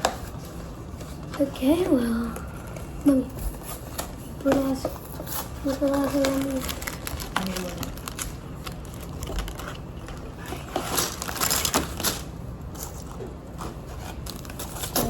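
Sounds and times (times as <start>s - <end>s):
plastic bags crinkling: 5.2s - 15.0s.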